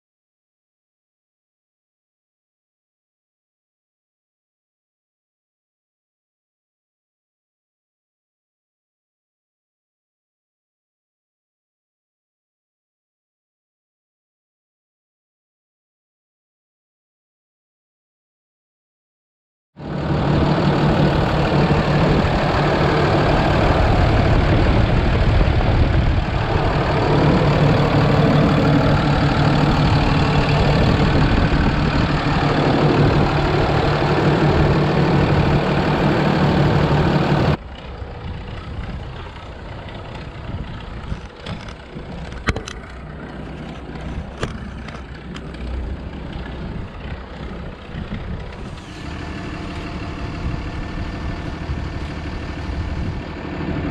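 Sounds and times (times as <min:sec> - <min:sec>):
truck engine running: 0:19.8 - 0:53.9.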